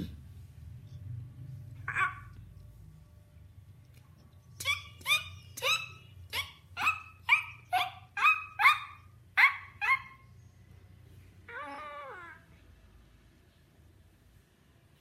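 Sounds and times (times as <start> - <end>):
dog barking: 4.6 - 10.3.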